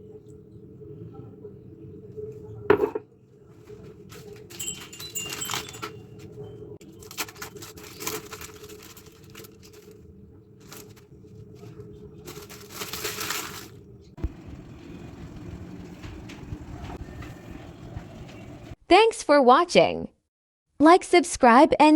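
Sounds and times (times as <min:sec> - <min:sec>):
utensils and dishes clinking: 0:04.1 - 0:09.4, 0:12.3 - 0:18.8.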